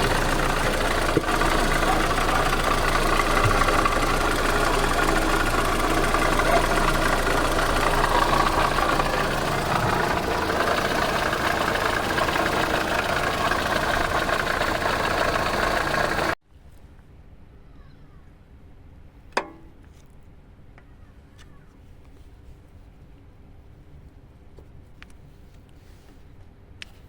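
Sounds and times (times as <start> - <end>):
car engine with metallic knock: 0.0 - 16.4, 19.4 - 19.8.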